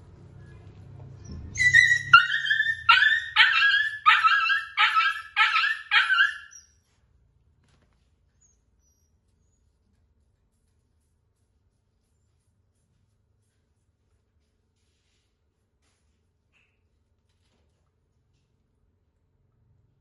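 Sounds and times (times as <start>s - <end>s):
puppy yelping: 1.2s - 6.8s.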